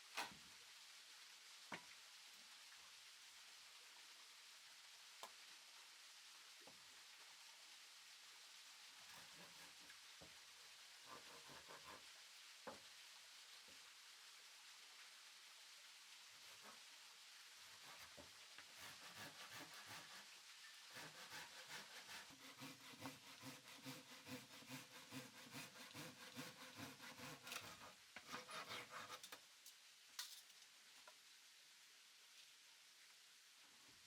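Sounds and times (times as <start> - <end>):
hand saw cutting wood: 9.1 - 9.9, 11.0 - 12.0, 17.7 - 29.4.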